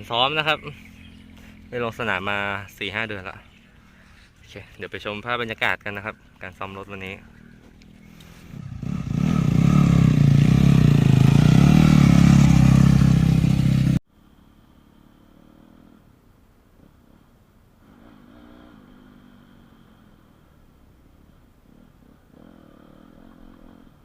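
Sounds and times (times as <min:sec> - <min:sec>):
distant engine running: 0:07.2 - 0:14.0
motocross bike engine revving: 0:07.2 - 0:14.0.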